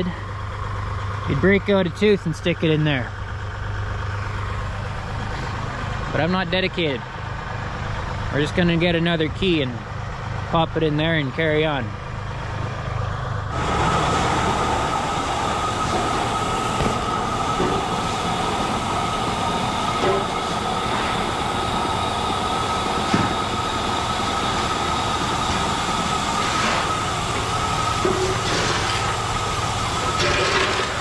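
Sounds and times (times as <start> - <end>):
grain auger running: 3.9 - 31.0
high-pitched squeal: 13.5 - 31.0.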